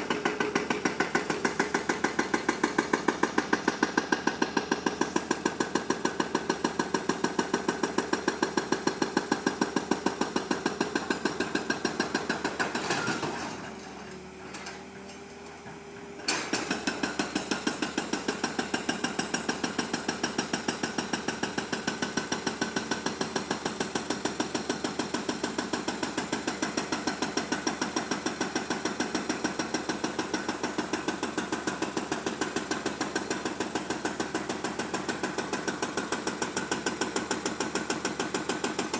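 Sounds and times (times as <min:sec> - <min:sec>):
excavator mechanical knocking: 0:00.0 - 0:13.0.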